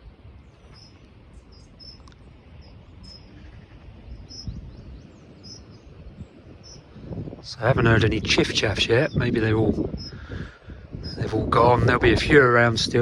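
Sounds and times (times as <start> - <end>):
finches giving high flight calls: 0.6 - 7.1, 9.0 - 10.3, 10.9 - 11.4.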